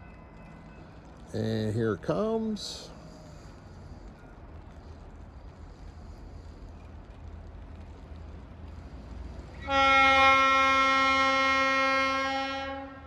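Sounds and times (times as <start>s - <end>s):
rail diesel car rumbling: 0.0s - 13.0s
train air horn chord: 9.6s - 13.0s.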